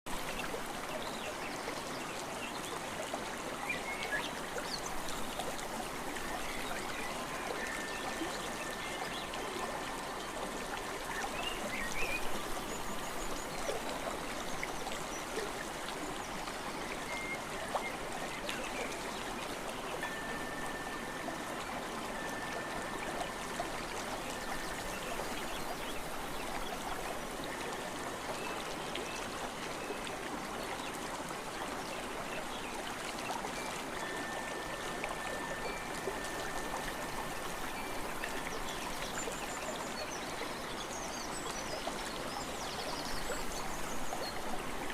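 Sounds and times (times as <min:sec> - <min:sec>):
thin high tone: 0:20.0 - 0:25.2.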